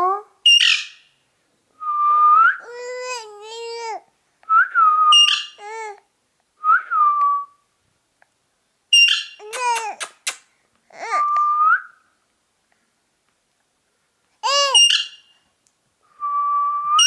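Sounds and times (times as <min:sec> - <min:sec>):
parakeet nasal chattering: 0:09.4 - 0:10.6.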